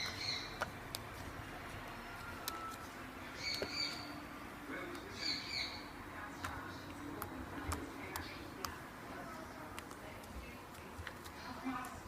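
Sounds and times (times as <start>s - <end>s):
bird squawking: 0.0s - 0.6s, 3.4s - 4.2s, 5.1s - 5.9s.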